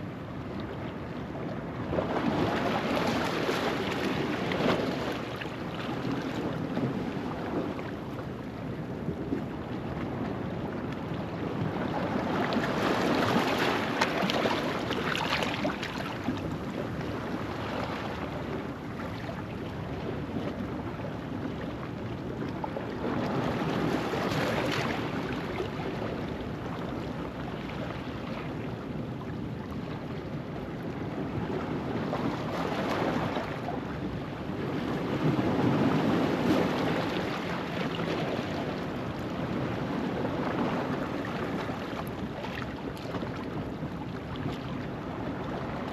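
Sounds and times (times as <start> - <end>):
waves washing over rocks: 11.6 - 18.6.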